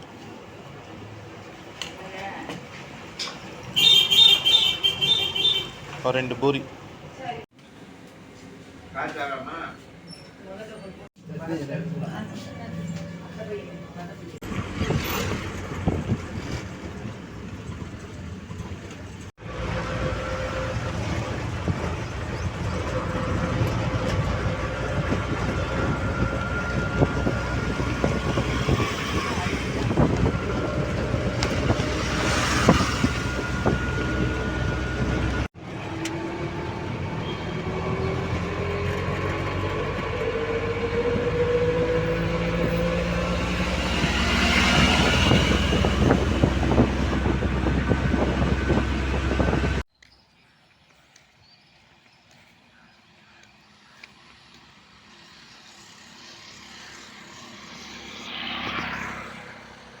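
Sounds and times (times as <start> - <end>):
vehicle and road noise: 0.0 - 60.0
engine drone with rising tone: 11.7 - 49.8, 53.8 - 60.0.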